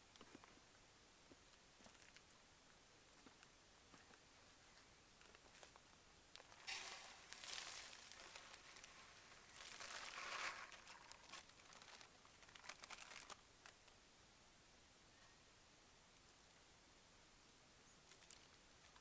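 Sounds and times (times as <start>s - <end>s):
crinkling and rustling: 5.2s - 14.0s, 18.0s - 19.0s.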